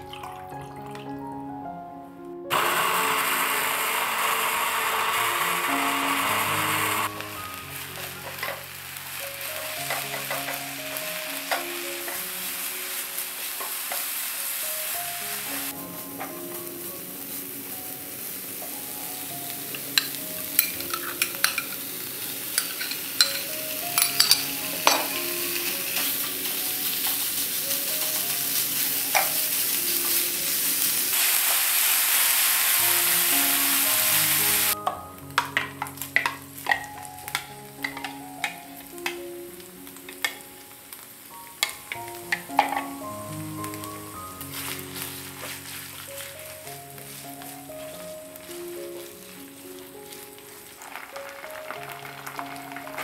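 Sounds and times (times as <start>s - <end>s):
soft background music: 0.0s - 53.0s
oil sizzling in a pan: 2.5s - 53.0s
spatula scraping and tapping pan: 9.9s - 12.2s, 20.0s - 21.8s, 22.5s - 26.3s, 35.3s - 39.2s.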